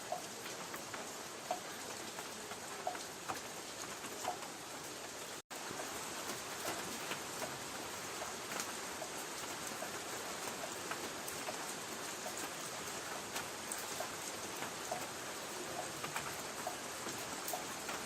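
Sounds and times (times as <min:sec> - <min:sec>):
light rain on a tin roof: 0:00.0 - 0:18.0.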